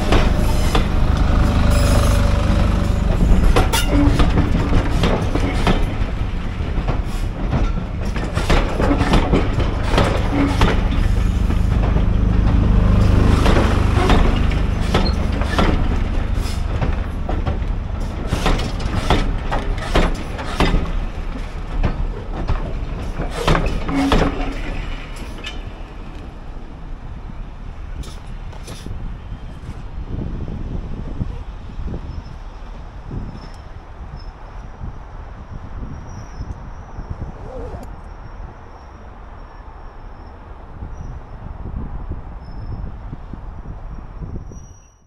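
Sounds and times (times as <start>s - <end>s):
wheels clicking over rail joints: 0.0s - 27.0s
train low rumble: 0.0s - 45.0s.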